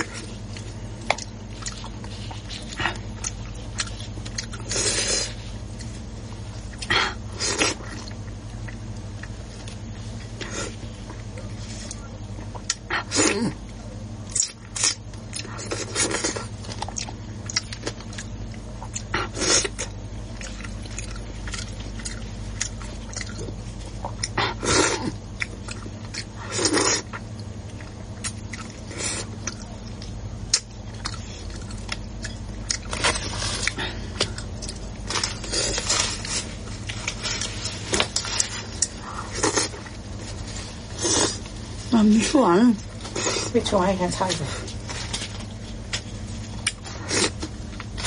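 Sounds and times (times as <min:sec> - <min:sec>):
steady low hum: 0:00.0 - 0:48.0
person chewing and slurping: 0:14.3 - 0:41.8.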